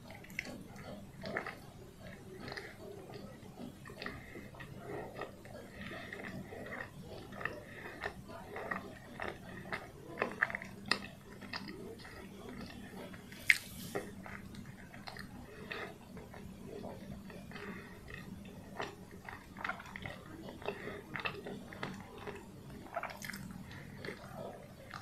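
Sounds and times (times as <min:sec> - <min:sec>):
chewing with wet mouth clicks: 0:00.0 - 0:25.0.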